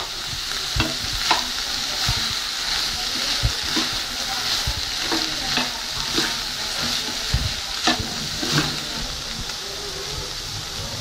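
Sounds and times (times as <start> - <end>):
meat sizzling in a pan: 0.0 - 11.0
metal spatula scraping: 0.8 - 9.1.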